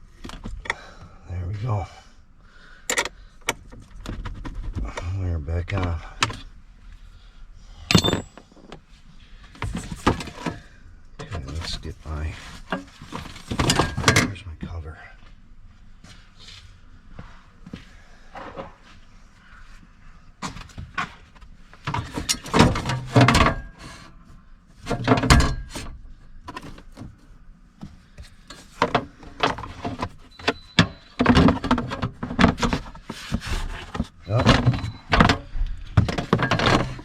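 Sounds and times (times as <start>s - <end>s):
battery cover thunks and clatter: 7.9s - 8.5s.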